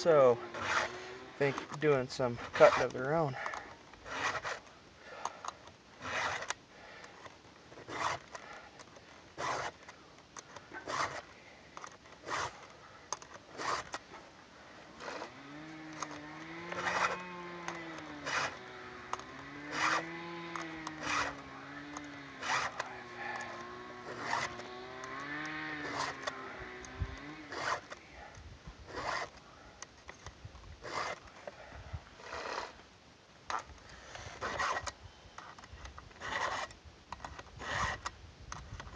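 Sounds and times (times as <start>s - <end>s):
distant chainsaw revving: 0.0s - 5.3s, 14.8s - 28.0s, 28.9s - 29.3s
hand file rasping on saw chain: 0.0s - 5.3s, 6.0s - 6.6s, 7.8s - 9.8s, 10.8s - 11.3s, 12.2s - 12.7s, 13.5s - 14.0s, 15.0s - 26.5s, 27.2s - 28.0s, 28.9s - 29.4s, 30.8s - 31.2s, 32.2s - 32.8s, 34.2s - 34.9s, 36.2s - 36.7s, 37.6s - 38.1s.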